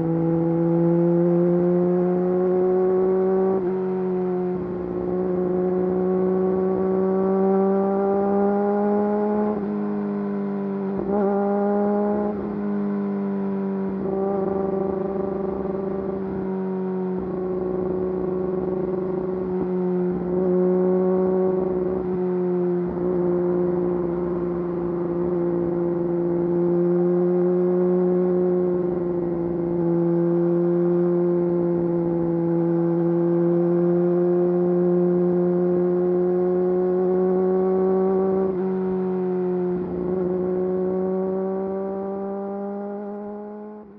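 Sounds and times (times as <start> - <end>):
motorcycle engine running: 17.1 - 22.3.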